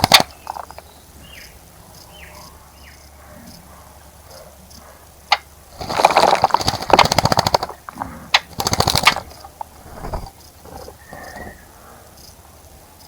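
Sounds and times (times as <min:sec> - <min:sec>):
sharp ticks: 0:00.0 - 0:00.9, 0:04.7 - 0:10.5
bird splashing in water: 0:05.3 - 0:10.4.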